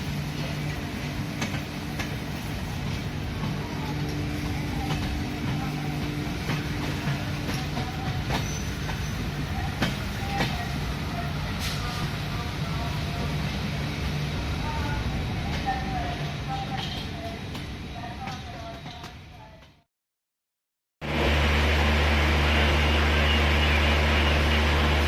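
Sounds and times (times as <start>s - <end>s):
rumble of rolling coaches: 0.0s - 19.8s.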